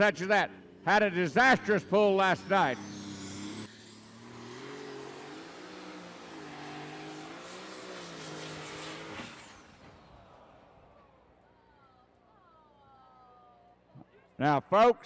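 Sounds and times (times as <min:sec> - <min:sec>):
tractor engine at full power: 0:00.0 - 0:10.6
turbocharger whine: 0:00.0 - 0:11.4.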